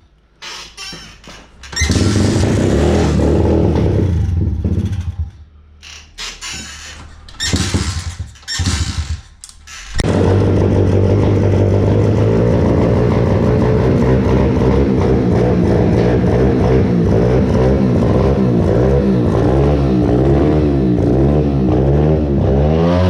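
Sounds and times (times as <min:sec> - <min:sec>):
motorbike engine starting and running: 0:00.8 - 0:23.0.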